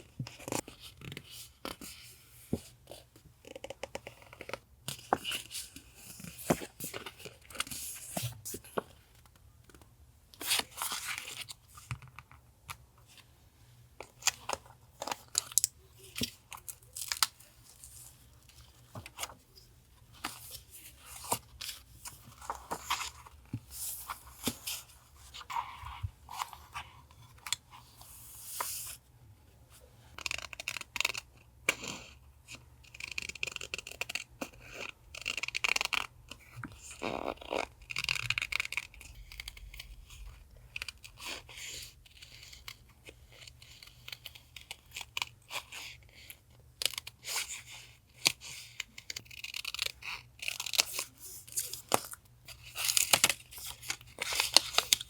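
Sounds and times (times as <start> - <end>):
paper rustling and crinkling: 14.1 - 27.3.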